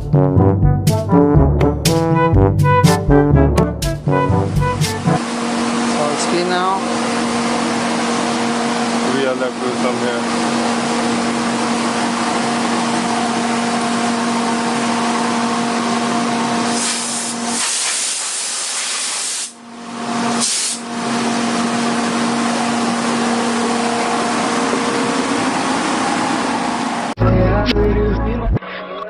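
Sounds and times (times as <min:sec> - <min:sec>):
vacuum humming: 0:04.3 - 0:27.2
rushing hiss of air: 0:16.7 - 0:19.6, 0:20.4 - 0:20.8.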